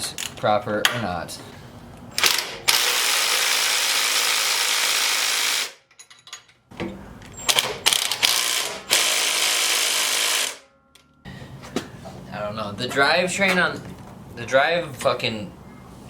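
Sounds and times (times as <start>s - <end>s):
ratchet wrench clicking: 2.2s - 5.7s.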